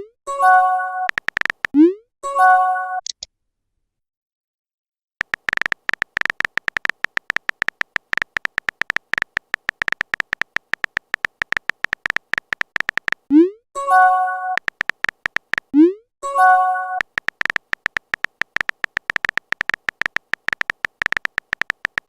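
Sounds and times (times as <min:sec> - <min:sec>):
phone keyboard typing clicks: 0:01.0 - 0:01.8, 0:05.2 - 0:13.3, 0:14.5 - 0:15.8, 0:16.8 - 0:22.0.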